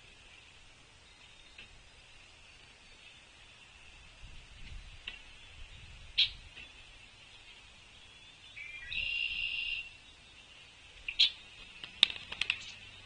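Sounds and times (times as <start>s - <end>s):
buzzy trilled bird call: 8.6s - 10.0s.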